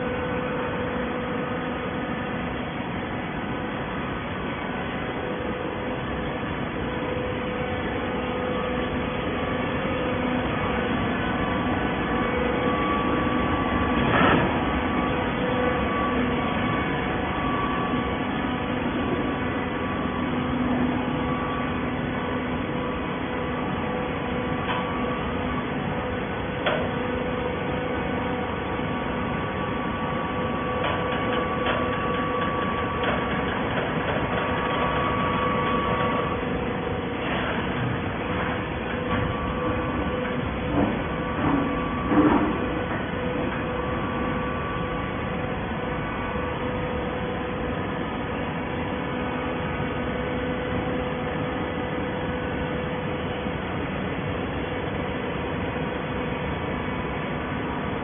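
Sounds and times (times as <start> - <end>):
baler machine hum: 0.0 - 58.0.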